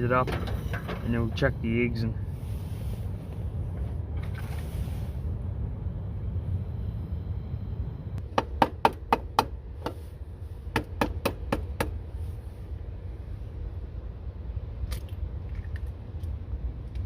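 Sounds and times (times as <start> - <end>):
sharp knocks: 10.7 - 11.9.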